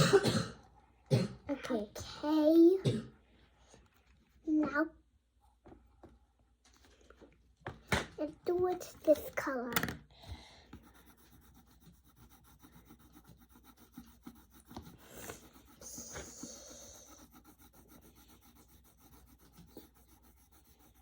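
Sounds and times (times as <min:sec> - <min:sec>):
pencil scratching on paper: 0:10.6 - 0:21.0.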